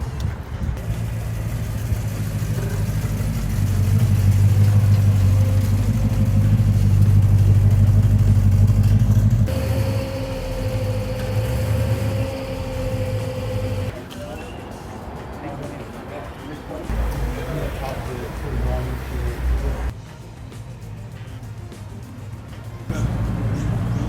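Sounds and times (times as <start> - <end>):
car engine running: 0.7 - 13.9.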